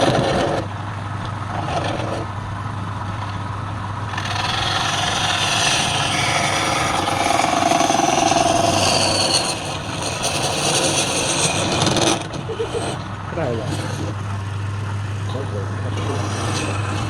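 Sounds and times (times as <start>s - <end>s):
wood lathe cutting: 4.0s - 14.3s, 15.9s - 17.0s.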